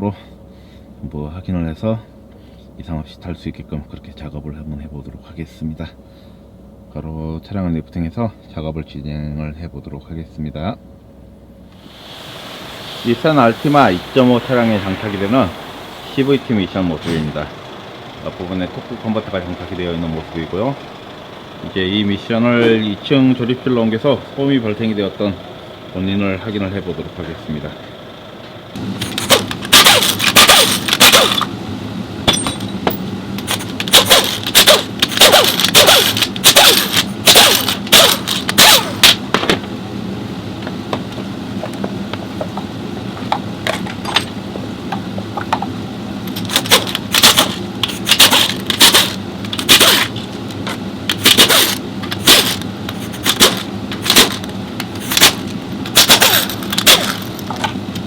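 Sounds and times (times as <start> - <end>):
steady low hum: 0.0 - 58.0
metal tools knocking and clanking: 32.2 - 39.6.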